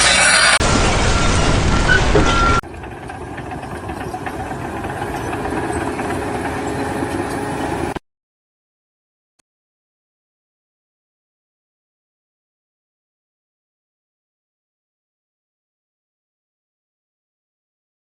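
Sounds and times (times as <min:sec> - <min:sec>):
loud noisy sound: 0:00.0 - 0:02.9
engine running steadily: 0:00.0 - 0:08.0.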